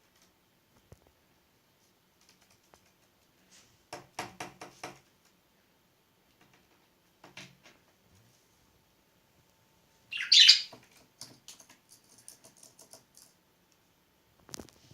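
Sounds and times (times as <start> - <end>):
budgerigar chirp: 10.1 - 10.7.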